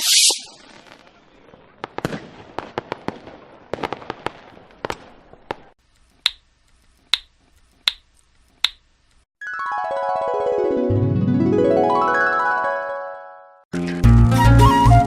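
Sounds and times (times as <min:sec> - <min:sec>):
finger snaps: 0:06.2 - 0:07.3, 0:07.9 - 0:08.8.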